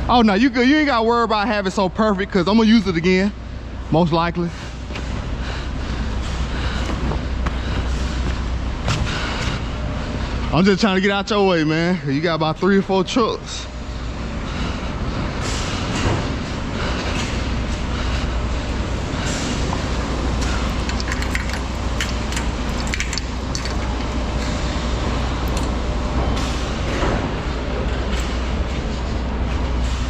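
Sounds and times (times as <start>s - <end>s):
clicks and rattles: 20.4s - 24.6s.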